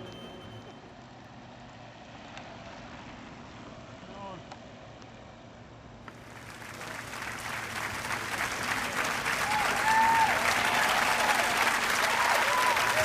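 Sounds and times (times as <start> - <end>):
crowd clapping: 6.1 - 13.0
cheering whoops: 9.3 - 13.0.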